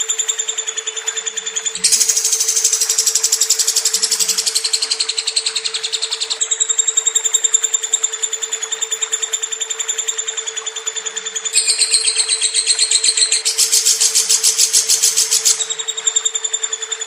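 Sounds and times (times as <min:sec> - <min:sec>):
steady hum: 0:01.7 - 0:06.5
lovebird chattering trill: 0:01.8 - 0:07.6, 0:11.6 - 0:16.2.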